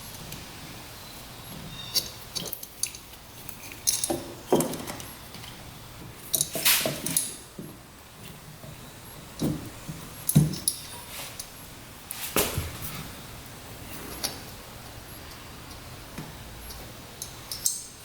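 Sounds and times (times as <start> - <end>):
metal tools clinking: 3.6 - 5.0, 17.2 - 18.0.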